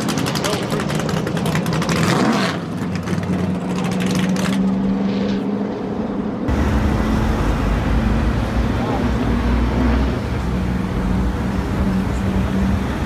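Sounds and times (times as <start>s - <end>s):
car engine at high revs: 6.2s - 13.0s.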